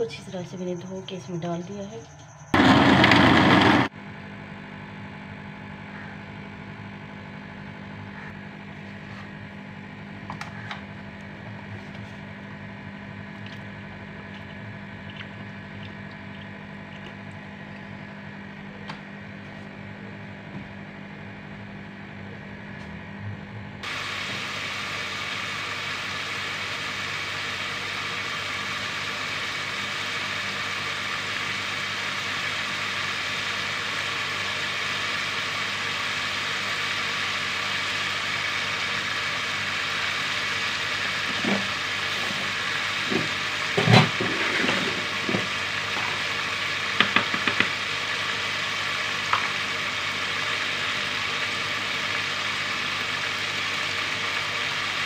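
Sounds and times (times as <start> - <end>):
food sizzling in oil: 23.8 - 55.0.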